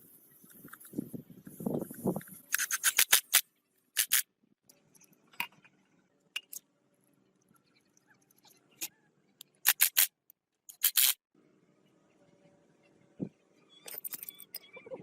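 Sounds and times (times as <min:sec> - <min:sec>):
sharp snips: 0:02.1 - 0:03.4, 0:04.0 - 0:04.2, 0:09.6 - 0:10.1.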